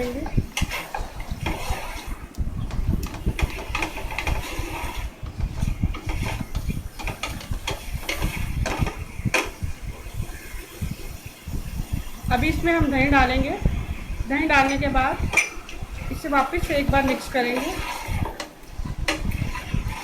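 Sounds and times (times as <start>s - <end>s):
spoon scraping and knocking pot: 0.0s - 10.5s.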